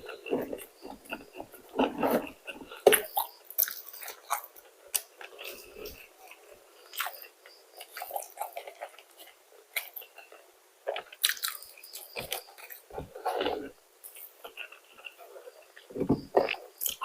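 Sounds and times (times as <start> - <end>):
person chewing fried food: 0.0 - 17.0.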